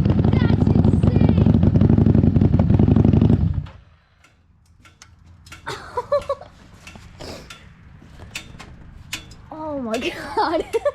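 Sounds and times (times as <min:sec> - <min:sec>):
motorcycle engine: 0:00.0 - 0:05.6
faint clicks and ticks: 0:04.1 - 0:10.0.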